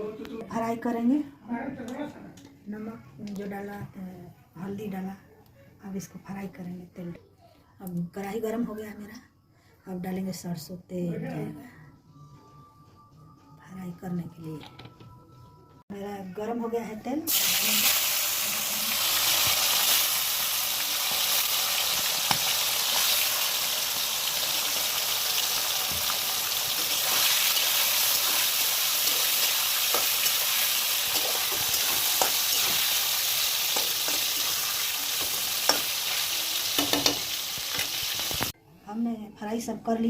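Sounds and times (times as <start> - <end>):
chicken sizzling in hot oil: 17.3 - 38.6.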